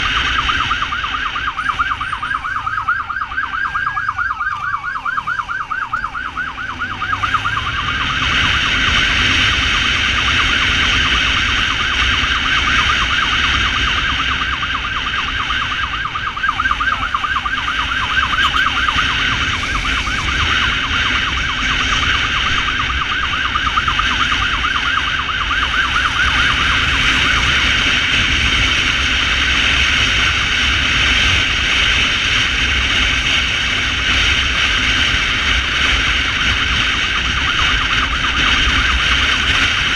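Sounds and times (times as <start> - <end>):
electronic siren yelping: 0.0 - 39.9
wind rushing: 5.0 - 31.7.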